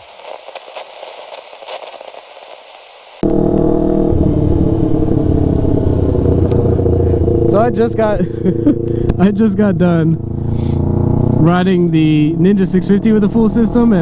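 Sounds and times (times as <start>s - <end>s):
faint crackling hiss: 0.0s - 3.2s
motorcycle engine running: 3.2s - 14.0s.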